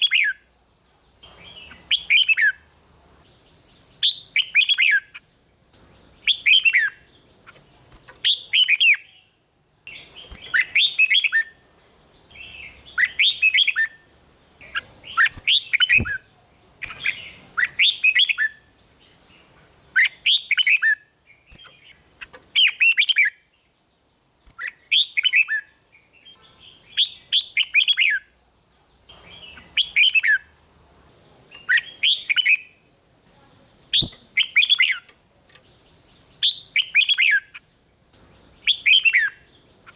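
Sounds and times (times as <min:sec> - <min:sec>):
faint high-pitched hiss: 0:00.0 - 0:39.9
bird singing whistled phrases: 0:12.4 - 0:14.0, 0:14.6 - 0:18.7, 0:20.0 - 0:21.8, 0:24.6 - 0:25.7, 0:31.6 - 0:32.8, 0:36.4 - 0:37.6, 0:38.6 - 0:39.4.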